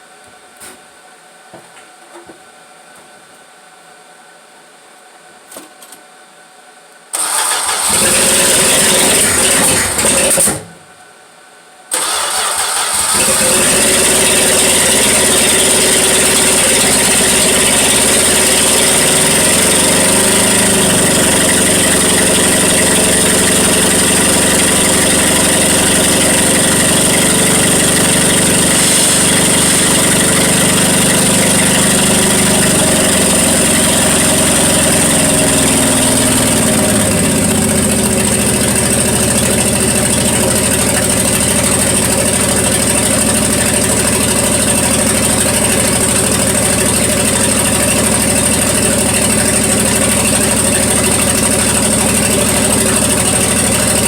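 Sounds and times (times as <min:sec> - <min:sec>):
car engine idling: 0:11.9 - 0:54.0.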